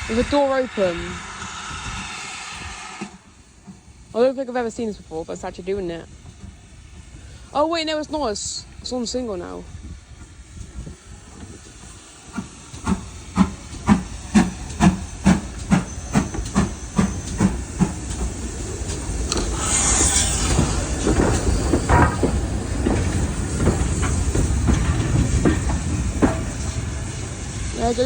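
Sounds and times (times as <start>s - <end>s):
steam hiss: 0.0s - 28.0s
steam locomotive exhaust beats: 0.0s - 28.0s
train rumbling: 0.0s - 28.0s.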